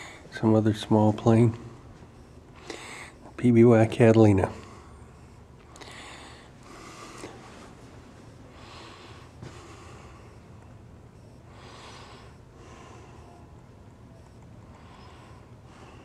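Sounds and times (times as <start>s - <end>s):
steady low hum: 0.0s - 16.0s
soft breathing close to microphone: 2.2s - 3.4s, 4.5s - 13.6s, 14.2s - 16.0s.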